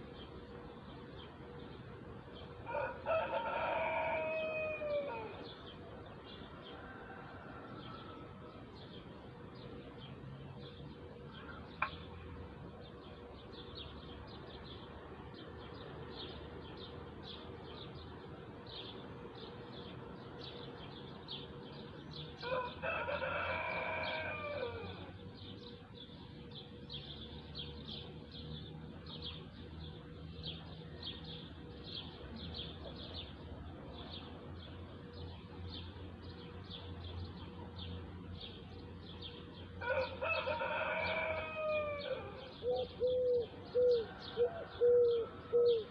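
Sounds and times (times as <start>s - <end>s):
rooster crowing: 2.6s - 5.5s, 6.6s - 8.6s, 22.4s - 25.2s, 39.8s - 42.6s, 43.9s - 45.9s.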